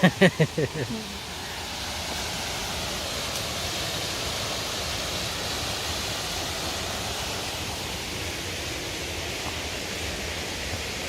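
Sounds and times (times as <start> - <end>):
river and waterfall rushing: 0.0 - 11.0.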